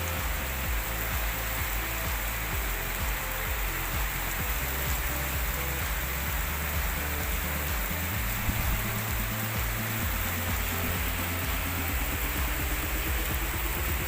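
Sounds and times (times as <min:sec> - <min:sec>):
steady rain: 0:00.0 - 0:14.0
wind buffeting microphone: 0:08.2 - 0:12.2.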